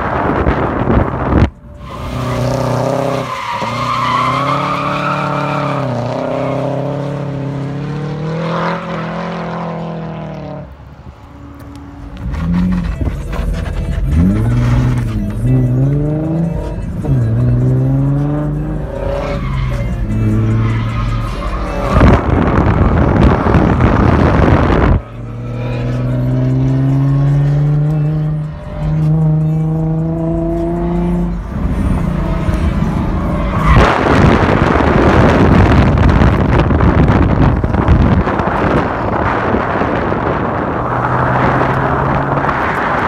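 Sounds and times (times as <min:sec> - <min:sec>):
car engine revving hard: 0:21.7 - 0:43.0.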